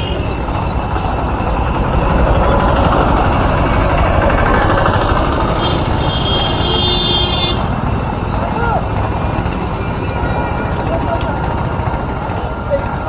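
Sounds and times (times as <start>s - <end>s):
vehicle engine and road noise: 0.0s - 13.0s
vehicle horn: 5.6s - 7.7s.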